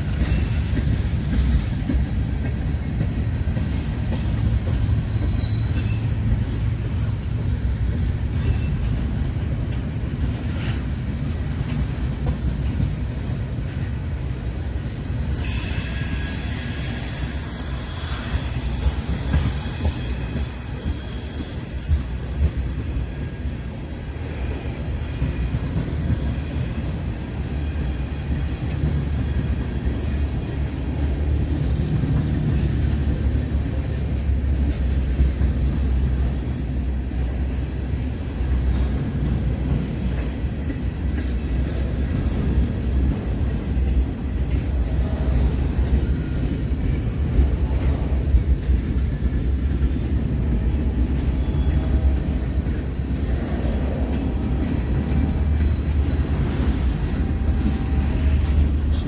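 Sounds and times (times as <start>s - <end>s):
train rumbling on rails: 0.0s - 59.0s
wheel squeal: 5.0s - 6.1s, 15.4s - 23.4s.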